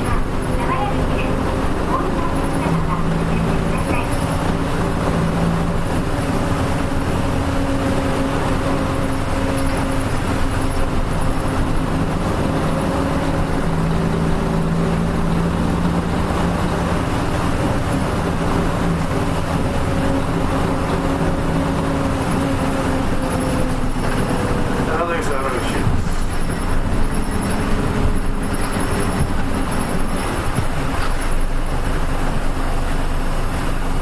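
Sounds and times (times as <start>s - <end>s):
bus diesel engine hum: 0.0s - 34.0s
road noise: 0.0s - 34.0s.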